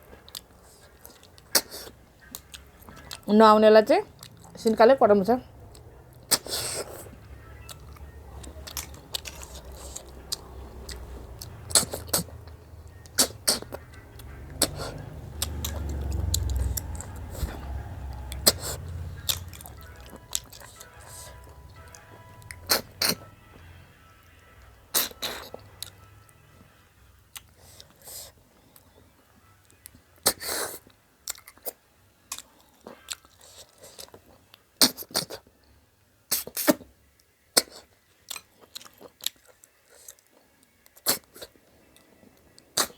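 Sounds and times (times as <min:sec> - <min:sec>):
slurping and chewing snails: 0:00.0 - 0:03.3, 0:04.1 - 0:04.7, 0:05.6 - 0:23.6, 0:24.4 - 0:26.0, 0:27.3 - 0:29.0, 0:29.7 - 0:35.5, 0:36.3 - 0:36.9, 0:37.6 - 0:42.9
low rumble: 0:14.0 - 0:20.5.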